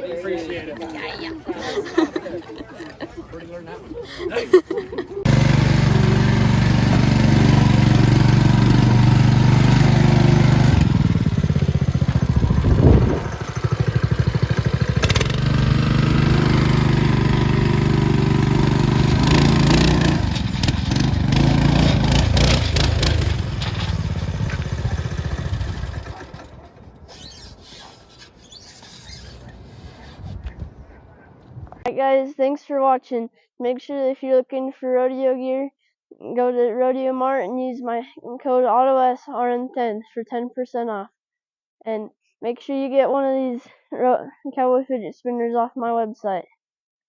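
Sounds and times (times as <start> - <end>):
motor engine running: 5.2 - 30.3.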